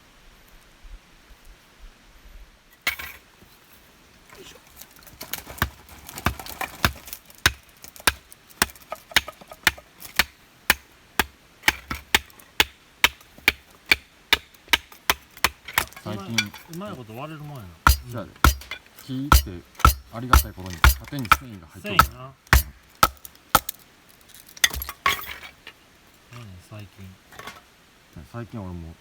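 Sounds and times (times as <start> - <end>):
axe splitting wood knocks: 17.9 - 23.8.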